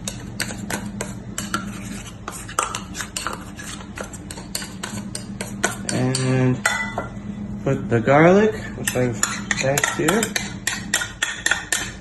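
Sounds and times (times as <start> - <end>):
steady low hum: 0.0 - 12.0
metal utensil scraping a dish: 0.1 - 6.4, 8.8 - 12.0.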